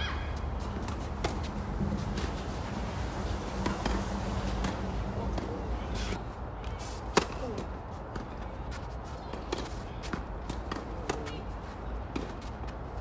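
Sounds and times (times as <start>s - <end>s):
tennis balls bouncing: 0.3s - 12.9s
racket hitting tennis ball: 0.4s - 6.2s, 7.1s - 8.3s.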